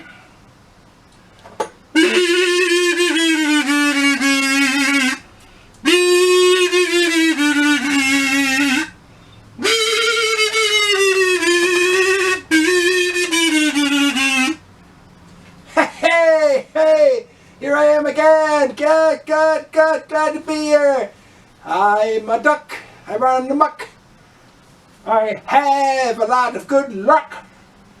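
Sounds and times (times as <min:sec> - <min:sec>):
reedy wind instrument melody: 0:01.9 - 0:09.0, 0:09.6 - 0:14.6.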